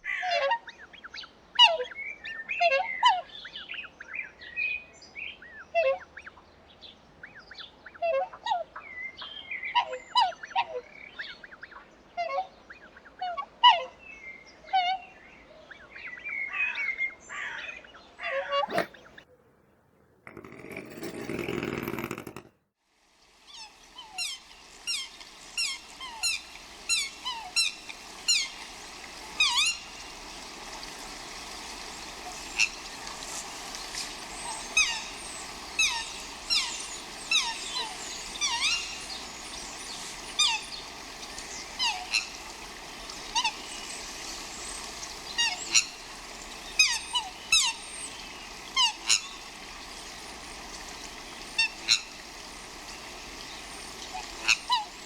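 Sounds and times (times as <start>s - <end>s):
steady background hiss: 23.1s - 55.0s
swans calling: 23.4s - 55.0s.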